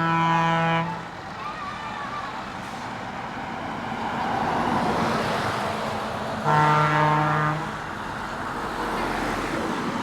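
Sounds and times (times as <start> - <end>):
truck horn blast: 0.0 - 1.1, 6.4 - 7.8
trucks driving past: 0.0 - 10.0.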